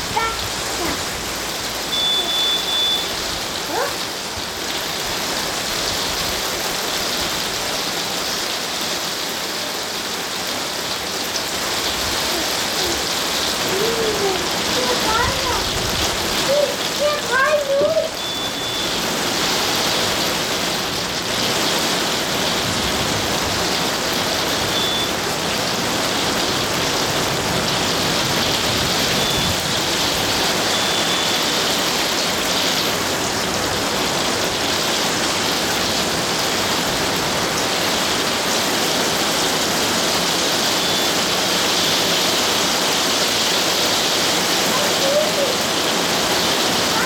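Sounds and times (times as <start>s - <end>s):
heavy rain hissing: 0.0s - 47.0s.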